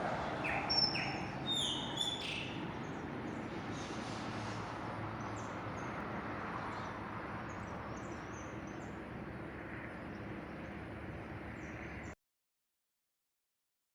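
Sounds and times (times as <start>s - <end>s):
outdoor background noise: 0.0s - 12.2s
high bird chirps: 0.4s - 2.6s.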